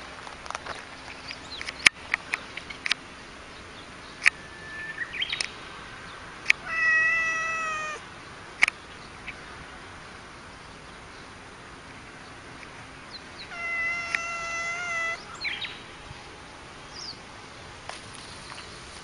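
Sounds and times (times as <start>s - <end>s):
cat meowing: 6.6s - 8.0s, 13.5s - 15.3s
sharp clicks: 8.6s - 8.8s, 14.0s - 14.3s.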